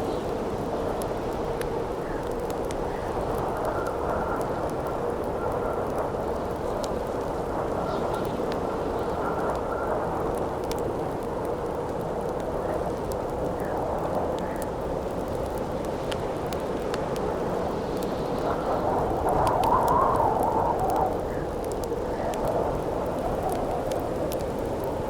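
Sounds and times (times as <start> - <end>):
campfire crackling and popping: 0.0 - 25.0
howling wind: 0.0 - 25.0.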